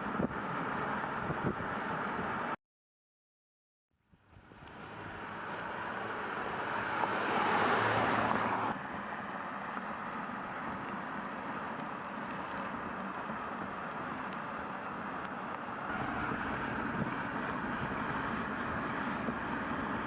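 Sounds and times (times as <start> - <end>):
car road and wind noise: 0.0 - 2.6, 4.1 - 20.0.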